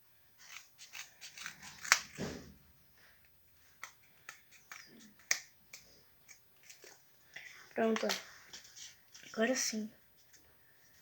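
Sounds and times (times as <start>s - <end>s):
scissors cutting cardboard: 0.4s - 2.6s.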